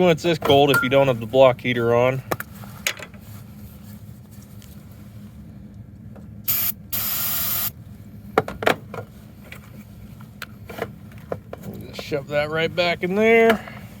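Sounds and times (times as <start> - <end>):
steady low hum: 0.0 - 14.0
aerosol can spraying: 6.5 - 7.7.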